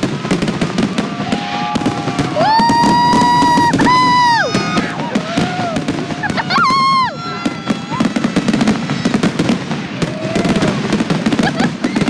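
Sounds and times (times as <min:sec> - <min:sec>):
fireworks bangs and crackles: 0:00.0 - 0:12.0
firework high whistle: 0:00.8 - 0:09.4.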